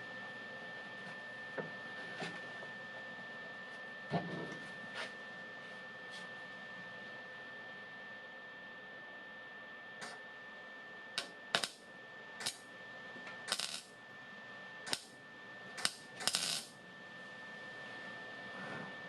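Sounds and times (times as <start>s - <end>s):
faint high whine: 0.0s - 19.0s
welding bursts: 11.5s - 11.8s, 13.5s - 13.9s, 14.9s - 15.1s, 15.8s - 16.7s.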